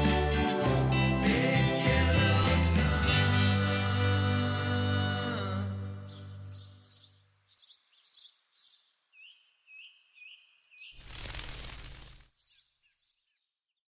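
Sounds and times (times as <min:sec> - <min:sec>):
music: 0:00.0 - 0:06.5
small birds chirping: 0:04.0 - 0:13.9.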